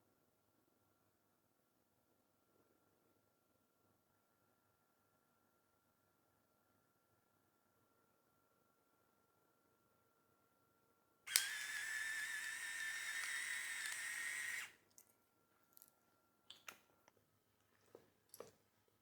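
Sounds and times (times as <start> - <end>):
electric grinder whining: 11.3 - 14.7.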